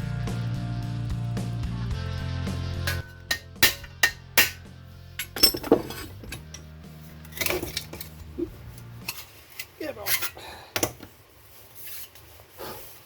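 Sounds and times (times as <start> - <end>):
background music: 0.0 - 9.6
metal striking metal: 2.8 - 9.2.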